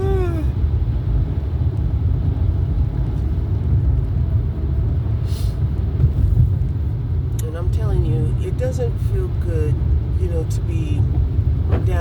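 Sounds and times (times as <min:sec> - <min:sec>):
road and engine rumble in car: 0:00.0 - 0:12.0
brief hiss: 0:05.2 - 0:05.6.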